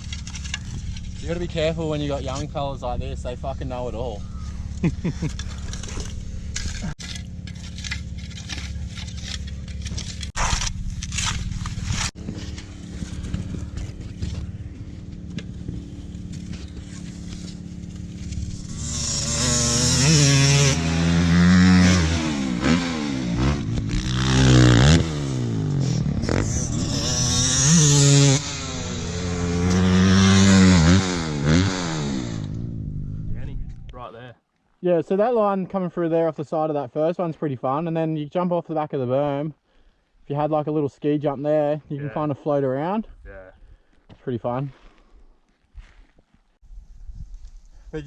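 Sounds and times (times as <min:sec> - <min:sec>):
scraping and clattering knocks: 0:00.0 - 0:01.7
dirt bike engine revving: 0:00.0 - 0:33.3.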